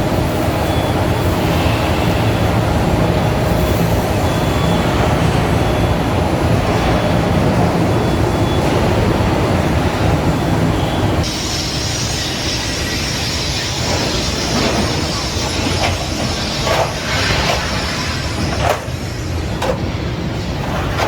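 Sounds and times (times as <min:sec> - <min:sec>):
heavy truck rumbling: 0:13.7 - 0:21.0.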